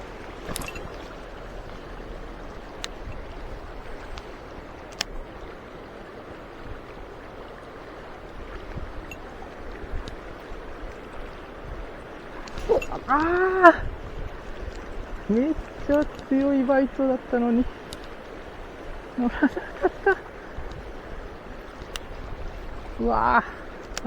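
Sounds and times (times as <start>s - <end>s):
stream water rushing: 0.0s - 24.0s
sharp clicks: 4.0s - 5.2s, 17.8s - 18.2s, 21.8s - 22.2s, 23.8s - 24.0s.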